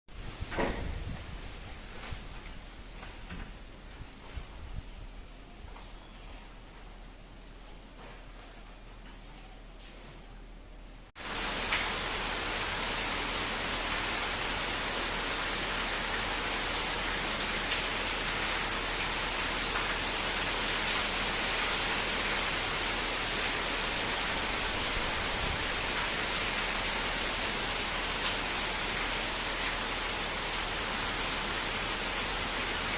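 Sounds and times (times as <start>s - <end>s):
heavy rain pouring: 11.2s - 32.9s.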